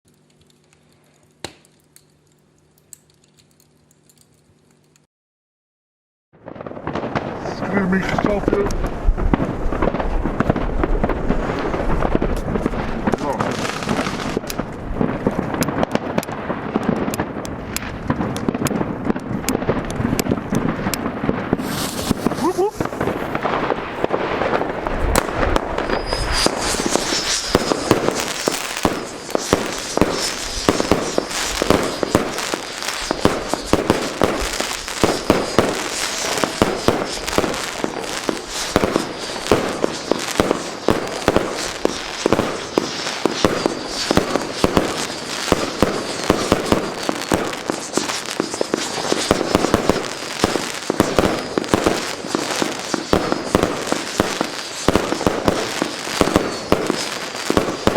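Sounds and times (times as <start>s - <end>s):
firework launches and bangs: 6.4s - 57.9s
high wavering whistling screech: 25.2s - 57.3s.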